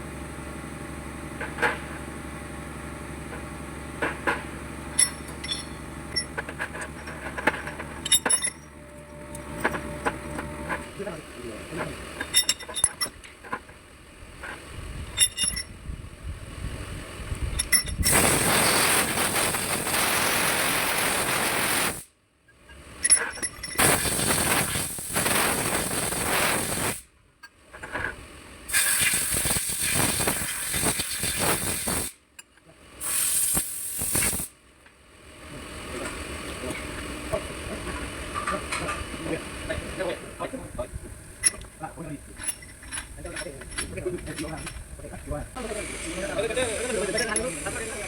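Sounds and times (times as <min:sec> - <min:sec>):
metallic clinks of parts: 0:04.9 - 0:10.6, 0:12.2 - 0:13.6, 0:15.1 - 0:15.8, 0:17.5 - 0:18.1, 0:22.7 - 0:24.1, 0:41.4 - 0:45.1, 0:46.8 - 0:47.8
loud rushing hiss: 0:18.0 - 0:22.1, 0:23.8 - 0:27.1, 0:28.7 - 0:32.2, 0:33.0 - 0:34.5, 0:45.6 - 0:48.0.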